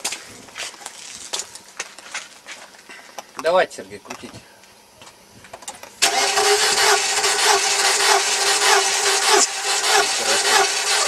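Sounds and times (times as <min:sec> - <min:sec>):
engine cranking by starter motor: 0:06.0 - 0:11.0.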